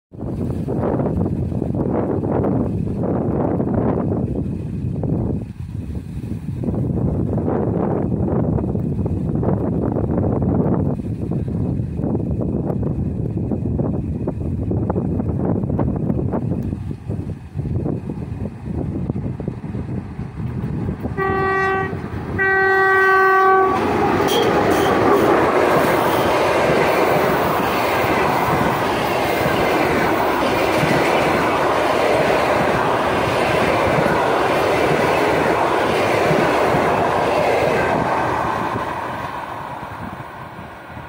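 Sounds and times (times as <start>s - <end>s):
train passing close by: 0.1s - 41.0s
locomotive horn blasts: 21.1s - 25.3s.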